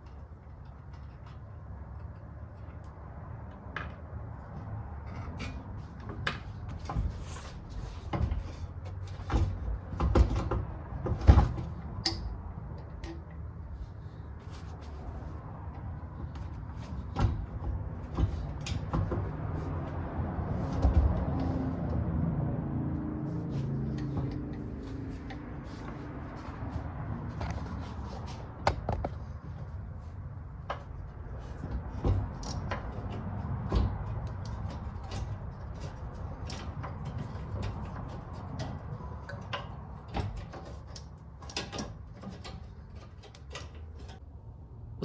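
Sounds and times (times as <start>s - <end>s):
traffic rumble: 0.0s - 45.0s
tools clattering on bicycle: 27.3s - 44.2s.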